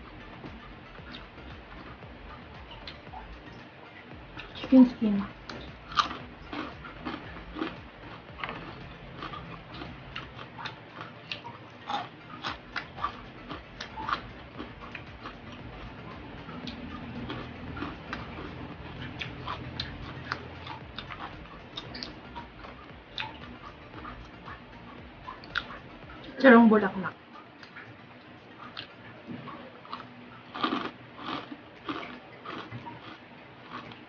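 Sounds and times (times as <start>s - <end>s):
crunching of chewing: 4.4s - 25.8s, 28.6s - 34.0s.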